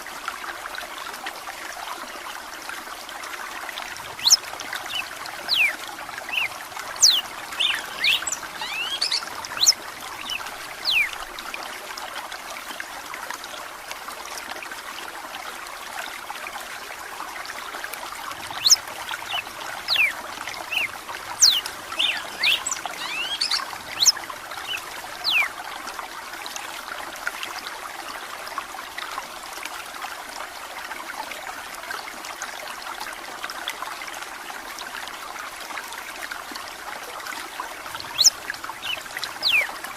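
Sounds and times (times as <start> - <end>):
water trickling: 0.0 - 39.9
bird singing whistled notes: 4.2 - 5.7, 6.3 - 11.1, 20.7 - 25.5, 38.1 - 39.7.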